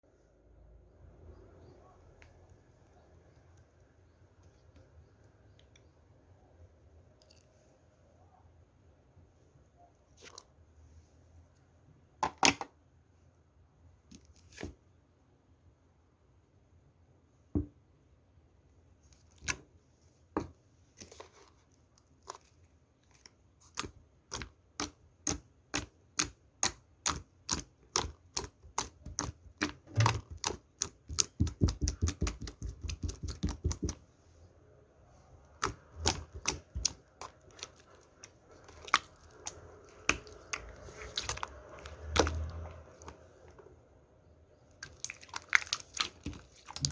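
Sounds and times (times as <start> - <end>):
slime squishing: 20.9 - 34.1, 35.1 - 46.9.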